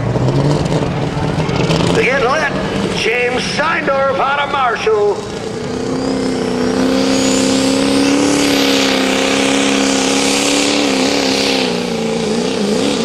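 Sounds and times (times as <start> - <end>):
diesel engine at high revs: 0.0 - 13.0.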